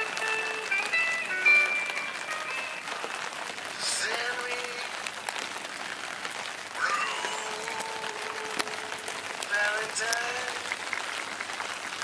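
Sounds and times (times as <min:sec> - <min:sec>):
wood fire crackling: 0:00.0 - 0:12.0
short voice-like sound: 0:06.8 - 0:09.0.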